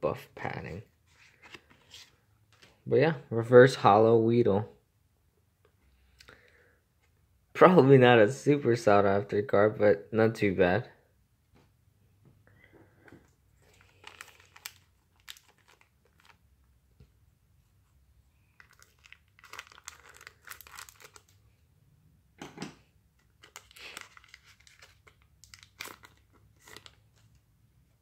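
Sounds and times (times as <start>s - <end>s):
foil wrapper tearing and crinkling: 13.7s - 16.4s, 18.6s - 21.3s, 23.4s - 27.0s.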